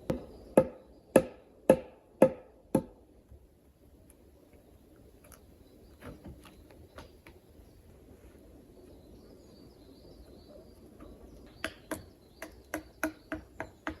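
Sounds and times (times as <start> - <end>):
faint bird chirp: 3.7 - 14.0.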